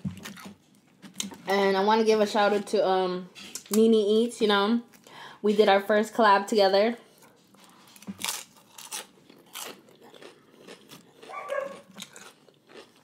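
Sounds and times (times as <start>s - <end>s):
crunchy chips being chewed: 7.5s - 13.0s.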